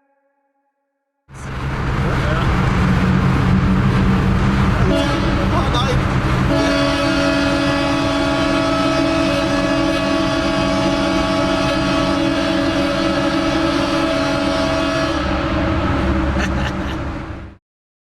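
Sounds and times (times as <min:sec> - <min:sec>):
low rumble: 0:01.3 - 0:06.7.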